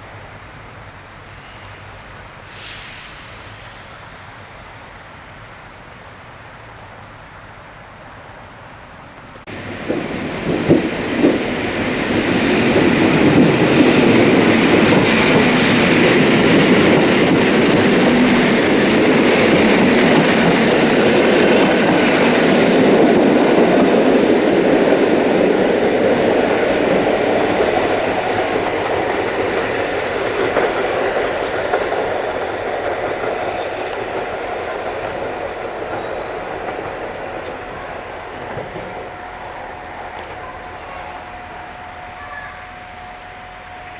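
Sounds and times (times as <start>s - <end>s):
train wheels on rails: 0.0s - 7.7s, 8.6s - 43.9s
wheels clicking over rail joints: 9.2s - 42.5s.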